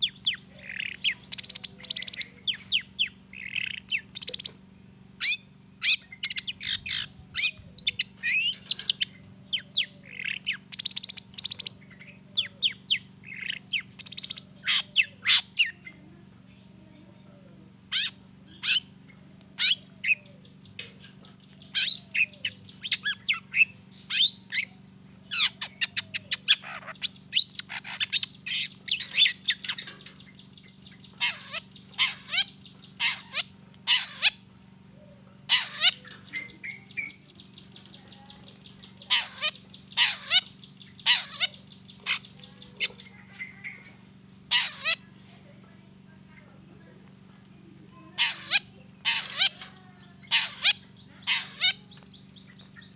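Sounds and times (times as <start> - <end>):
steady low hum: 0.0 - 52.9
shrike harsh sharp calls: 21.6 - 34.5, 35.5 - 37.5, 38.8 - 43.9, 44.5 - 45.0, 48.2 - 52.0.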